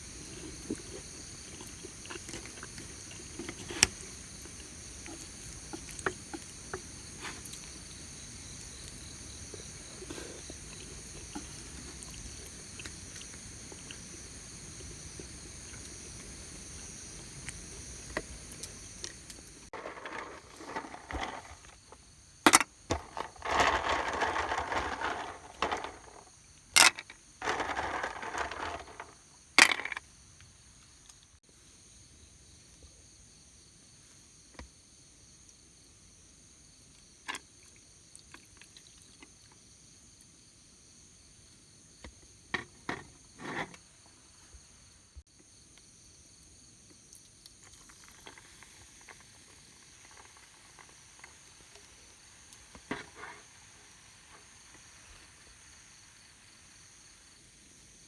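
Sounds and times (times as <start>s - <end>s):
crickets trilling: 0.0s - 58.0s
scraping or rustling: 19.6s - 30.0s, 52.9s - 53.5s.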